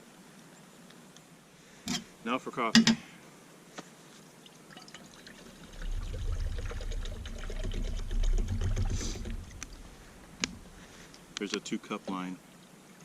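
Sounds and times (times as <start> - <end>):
water gurgling pour into cup: 4.7 - 10.8.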